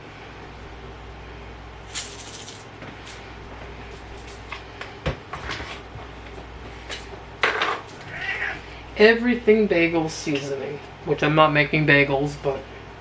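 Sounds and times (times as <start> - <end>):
seasoning rattling in shaker jar: 1.9 - 3.2.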